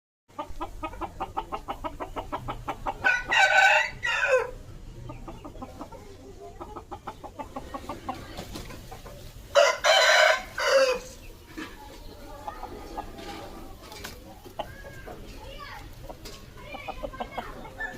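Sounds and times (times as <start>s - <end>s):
chicken clucking: 0.3s - 17.9s
rooster crowing: 3.0s - 4.6s, 9.5s - 11.2s.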